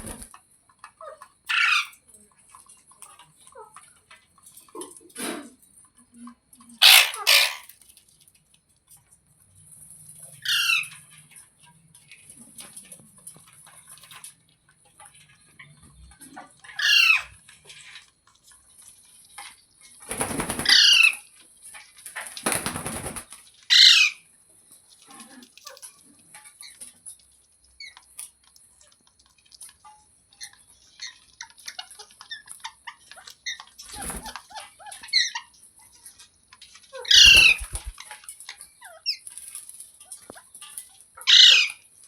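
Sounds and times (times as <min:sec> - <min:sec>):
parrot screeching: 0:01.5 - 0:01.9, 0:06.8 - 0:07.7, 0:10.4 - 0:10.9, 0:16.8 - 0:17.3, 0:20.5 - 0:21.2, 0:23.7 - 0:24.2, 0:37.0 - 0:37.9, 0:41.2 - 0:41.8.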